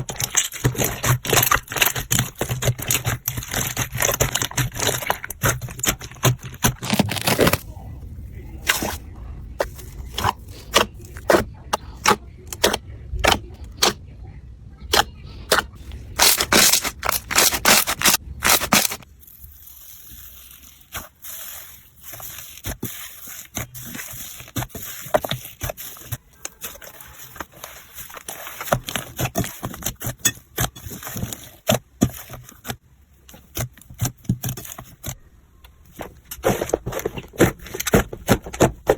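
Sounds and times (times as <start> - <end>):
slime popping and crackling: 0.0 - 7.7, 16.2 - 31.8.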